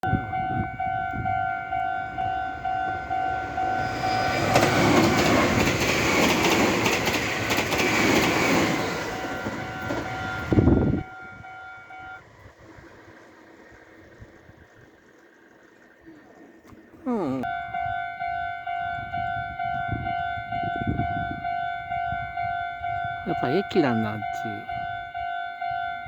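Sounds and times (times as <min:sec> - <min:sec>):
level crossing bell ringing: 0:00.0 - 0:04.4, 0:17.1 - 0:26.0
train wheels clattering over rails: 0:03.5 - 0:10.9.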